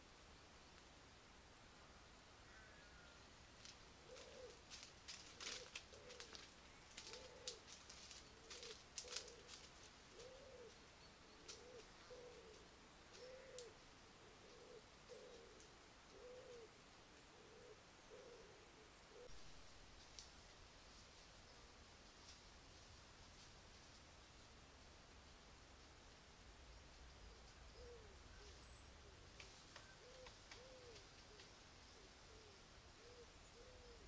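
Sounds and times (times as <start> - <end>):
faint clicks: 3.6 - 10.8, 11.4 - 13.8, 20.0 - 20.4, 29.3 - 31.6
bird calling in low notes: 8.3 - 16.7.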